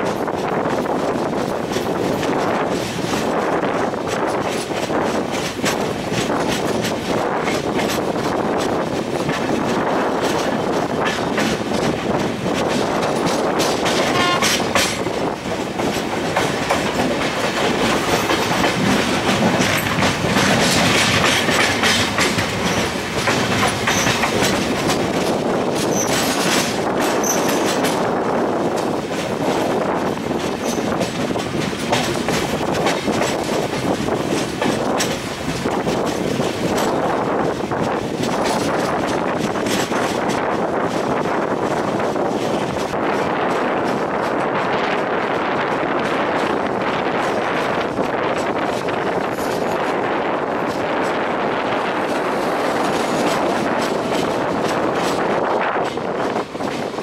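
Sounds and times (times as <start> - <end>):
clickety-clack over rail joints: 0.0 - 57.0
train wheels rumbling on track: 0.0 - 57.0.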